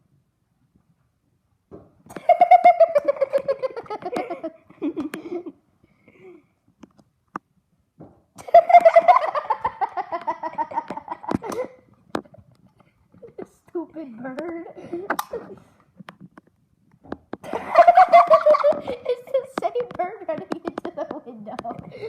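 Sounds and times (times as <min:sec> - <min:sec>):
person laughing: 0:02.1 - 0:05.6, 0:08.4 - 0:11.8, 0:17.4 - 0:19.2.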